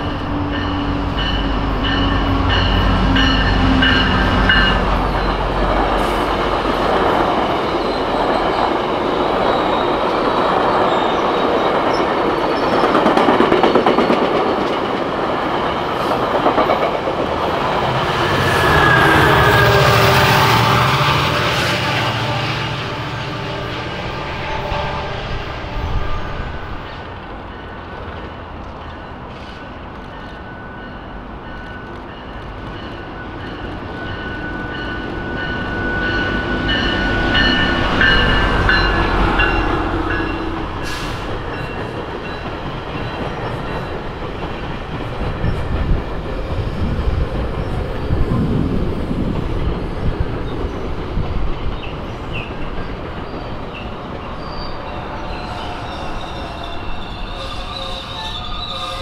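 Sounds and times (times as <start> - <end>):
train wheels rumbling: 0.0 - 59.0
high wheel squeal: 18.4 - 20.9, 53.2 - 59.0.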